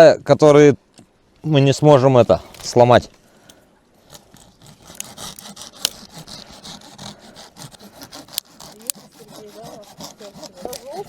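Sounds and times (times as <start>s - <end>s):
hand saw cutting wood: 4.1s - 11.0s.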